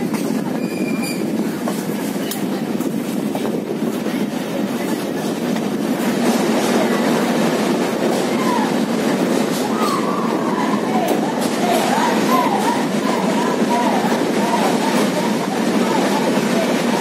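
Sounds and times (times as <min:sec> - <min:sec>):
clickety-clack of train wheels: 0:00.0 - 0:17.0
train wheels rumbling on rails: 0:00.0 - 0:17.0.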